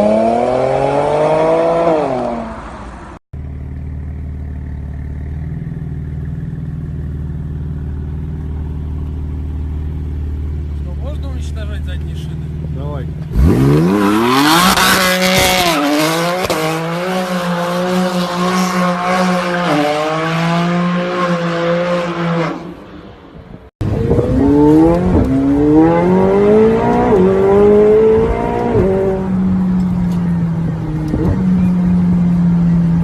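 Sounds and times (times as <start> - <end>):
car accelerating through gears: 13.3 - 22.7, 23.8 - 29.7
car engine revving hard: 13.3 - 22.7, 23.8 - 29.3.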